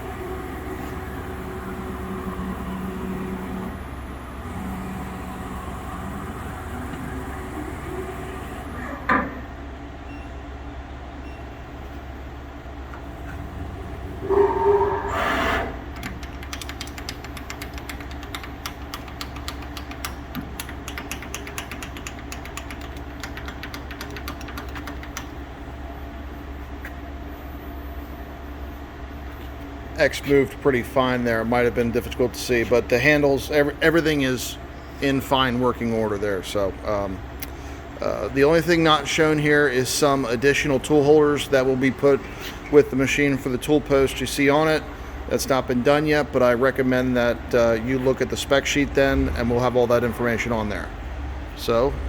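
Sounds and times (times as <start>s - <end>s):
lathe machine hum: 0.0s - 10.0s, 12.0s - 27.2s
rapid clicks of handwheel: 16.0s - 25.4s.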